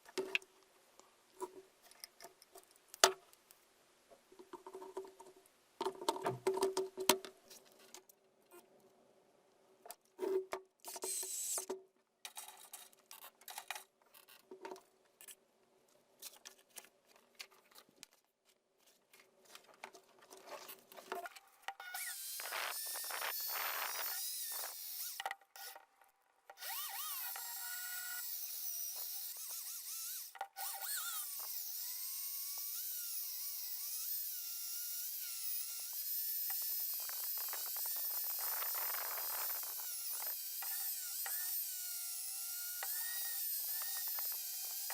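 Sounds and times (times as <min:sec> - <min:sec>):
clicks and knocks of parts handled: 0:09.9 - 0:15.4
small power tool whining: 0:11.0 - 0:11.6, 0:21.8 - 0:25.8, 0:26.6 - 0:44.9.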